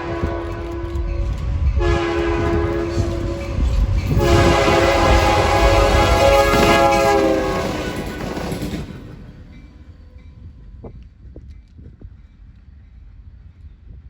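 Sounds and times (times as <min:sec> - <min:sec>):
locomotive air horn blast: 0:00.0 - 0:00.8, 0:01.8 - 0:08.4
passing train rumble: 0:00.0 - 0:14.0.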